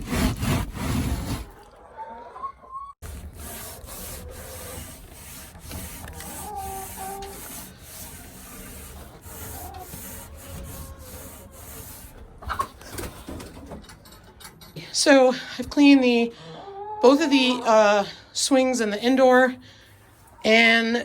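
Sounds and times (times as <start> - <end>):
scrubbing and scraping wood: 0.0 - 1.7, 3.0 - 12.8.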